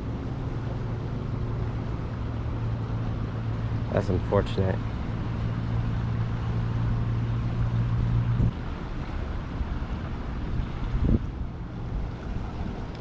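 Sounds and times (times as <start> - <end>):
low hum: 0.0 - 13.0
wind noise on microphone: 7.6 - 13.0.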